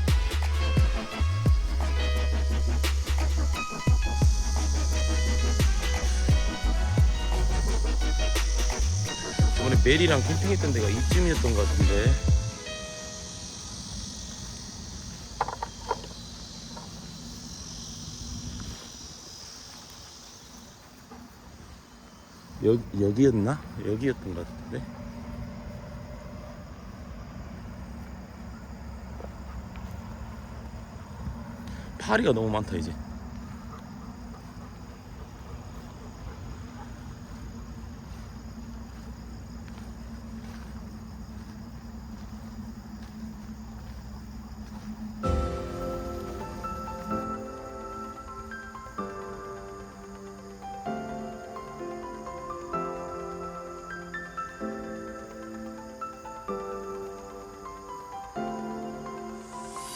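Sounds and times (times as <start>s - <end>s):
flies buzzing: 0.0s - 59.9s
insects chirring: 0.0s - 59.9s
low outdoor rumble: 23.6s - 48.0s.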